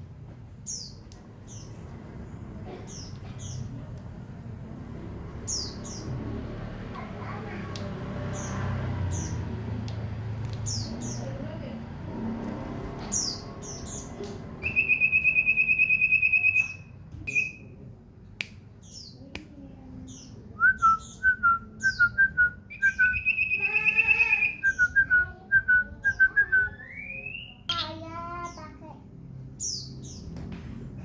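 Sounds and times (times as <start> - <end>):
bird trilling: 13.1 - 17.6, 22.7 - 25.0
bird high chirps: 13.1 - 17.8, 20.1 - 27.9
bird whistled notes: 14.6 - 17.6, 20.6 - 25.3.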